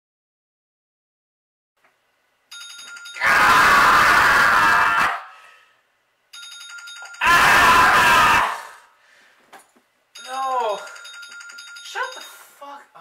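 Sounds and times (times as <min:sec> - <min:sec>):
bell ringing loudly: 0:02.5 - 0:03.2, 0:06.4 - 0:07.2, 0:10.2 - 0:12.5.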